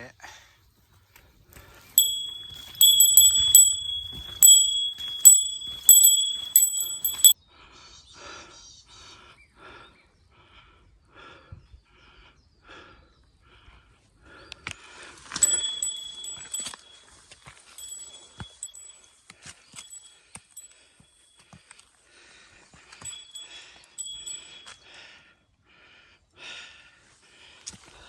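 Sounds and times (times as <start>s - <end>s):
small metal bell ringing: 2.0s - 7.4s, 15.4s - 17.0s, 17.8s - 19.1s, 19.8s - 20.8s, 23.1s - 24.7s.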